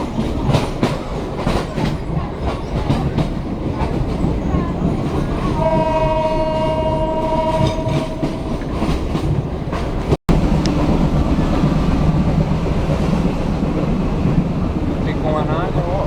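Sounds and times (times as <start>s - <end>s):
train rumbling on rails: 0.0s - 16.0s
diesel locomotive horn: 5.5s - 9.0s.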